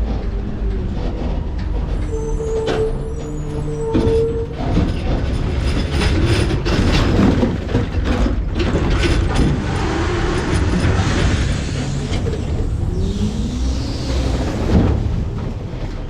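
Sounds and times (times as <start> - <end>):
diesel engine and hydraulics rumble: 0.0 - 16.0
steady whine: 9.6 - 16.0.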